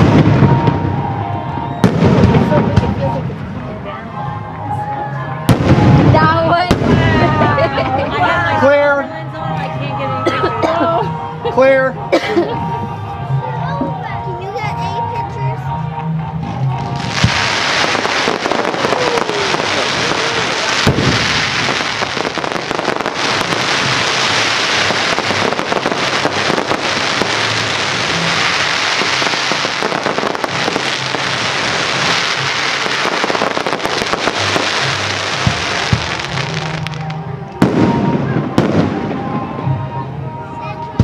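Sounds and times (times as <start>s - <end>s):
fireworks crackling: 0.0s - 3.9s, 5.4s - 8.9s, 16.5s - 41.0s.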